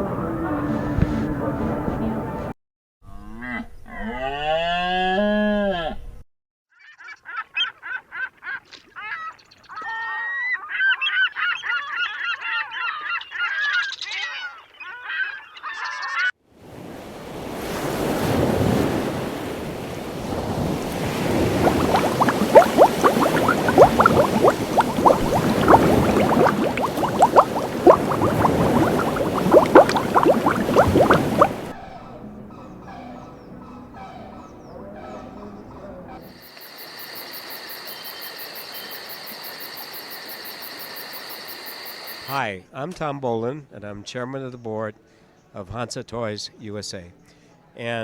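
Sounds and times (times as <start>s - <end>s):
rushing noise with crackling: 20.0s - 31.7s.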